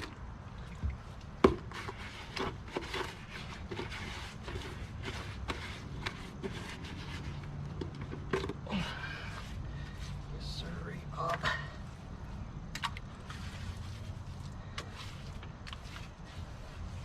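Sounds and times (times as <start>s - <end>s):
low steady hum: 0.0s - 17.0s
scraping cement around pipe: 1.4s - 10.6s, 13.2s - 17.0s.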